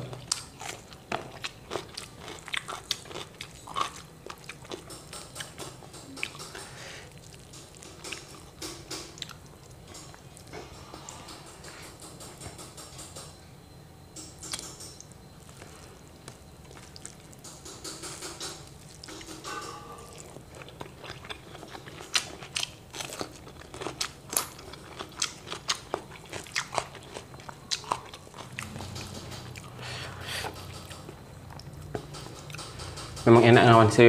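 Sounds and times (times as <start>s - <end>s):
cucumber crunching while chewed: 0.0s - 4.9s, 20.1s - 28.9s.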